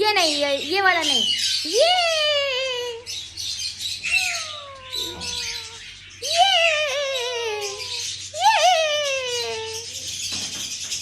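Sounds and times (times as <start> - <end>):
parrot squawking: 3.6 - 10.2.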